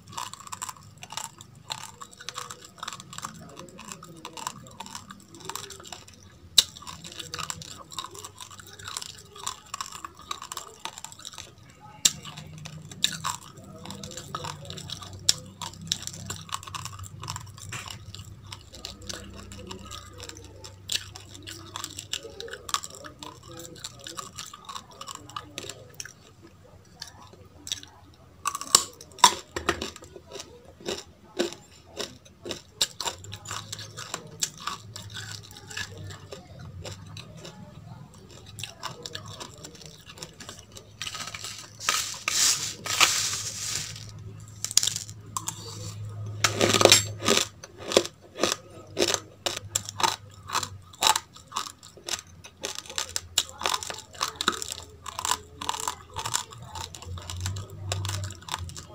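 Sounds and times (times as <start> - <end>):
crunching raw rice and carrots: 0.0 - 58.9
grainy rustling: 40.8 - 46.0.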